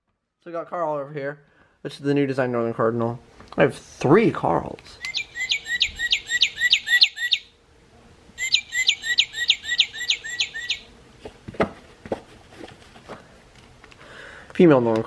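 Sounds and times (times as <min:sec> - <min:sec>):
recorded bird song from toy: 0:05.0 - 0:07.5, 0:08.4 - 0:10.9.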